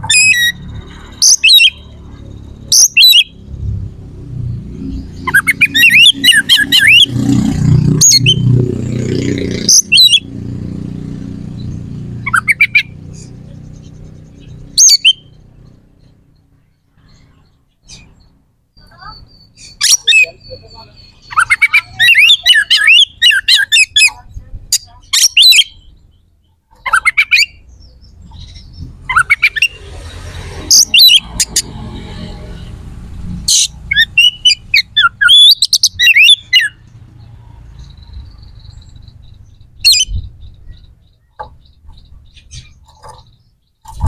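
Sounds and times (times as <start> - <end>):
bird singing whistles: 2.7 - 3.3, 5.2 - 7.2, 14.8 - 15.4, 17.8 - 24.1, 33.5 - 36.8, 38.2 - 41.3.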